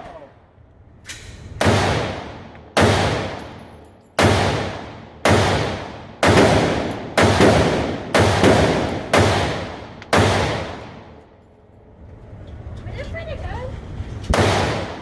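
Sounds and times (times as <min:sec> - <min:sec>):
rifle shots echoing: 0:01.6 - 0:11.2.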